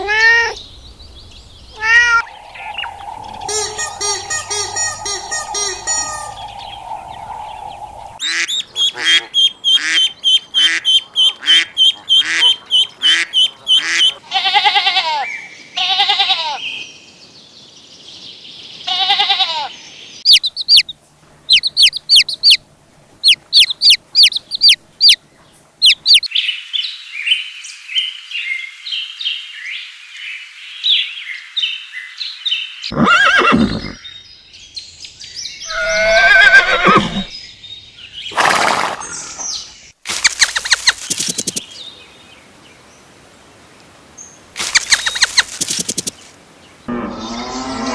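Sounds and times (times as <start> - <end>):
animal calls: 1.8 - 10.0, 35.7 - 37.3
chick peeping: 1.8 - 14.2, 20.3 - 20.9, 21.5 - 22.6, 23.2 - 25.2, 25.8 - 26.3, 40.2 - 41.6, 44.6 - 46.1.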